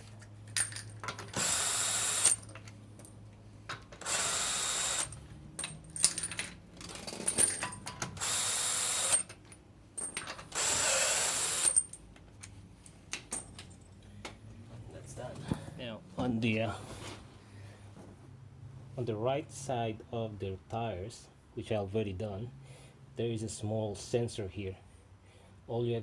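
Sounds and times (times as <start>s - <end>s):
power tool spinning off wheel nuts: 0.6s - 2.8s, 3.9s - 9.4s, 10.1s - 12.0s.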